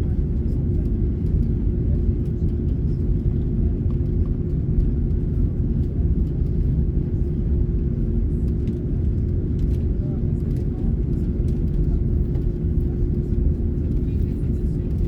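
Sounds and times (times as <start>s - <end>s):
airliner cabin rumble: 0.0s - 15.0s
constant hum: 0.0s - 15.0s.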